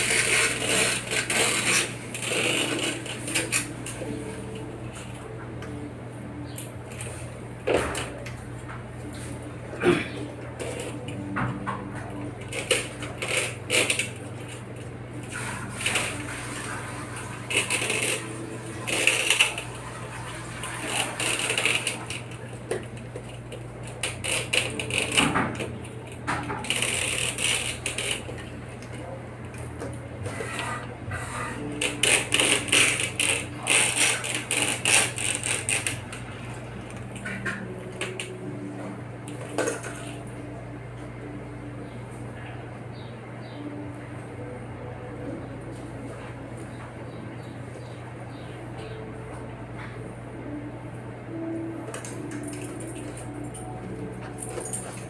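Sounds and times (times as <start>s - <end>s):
metallic clicks and scrapes: 0.0s - 5.1s, 12.0s - 38.4s.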